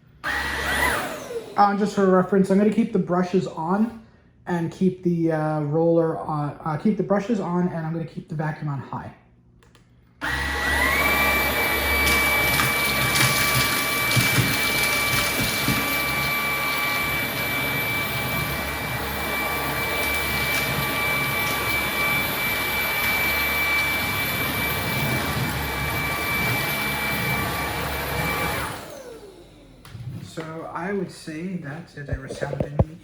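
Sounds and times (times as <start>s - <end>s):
stick vacuum motor whine: 0.2s - 2.0s, 10.2s - 31.0s.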